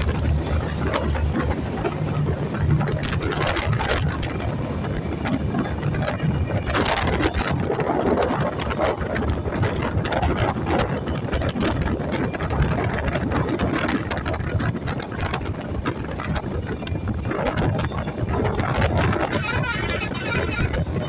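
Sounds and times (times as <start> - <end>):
moving vehicle rumble: 0.0 - 21.0
rattling: 19.2 - 21.0.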